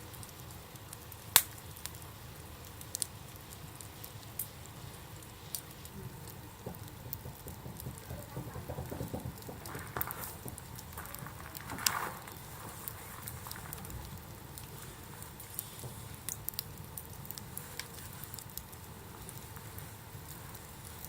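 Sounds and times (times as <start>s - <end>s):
campfire crackling: 0.0s - 21.0s
fire pop: 0.0s - 21.0s.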